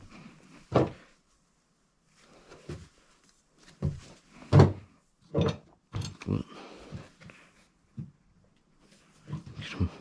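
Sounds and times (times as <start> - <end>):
metal clunks and knocks: 4.5 - 6.2.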